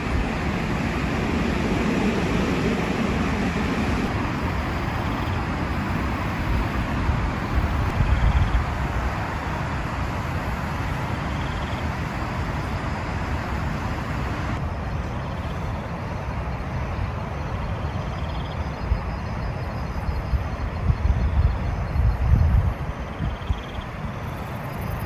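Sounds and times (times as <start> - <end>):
low rumble of wind: 0.0 - 25.0.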